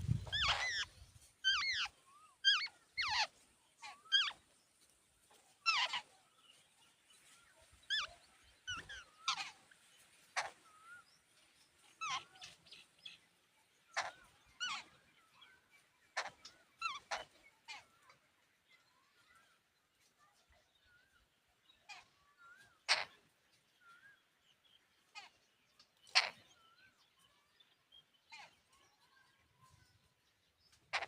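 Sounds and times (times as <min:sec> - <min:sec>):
birds making squeaky calls: 0:00.0 - 0:04.4, 0:05.6 - 0:06.2, 0:07.9 - 0:11.0, 0:11.9 - 0:12.7, 0:13.9 - 0:15.0, 0:16.1 - 0:17.9, 0:21.9 - 0:23.2, 0:26.0 - 0:26.5.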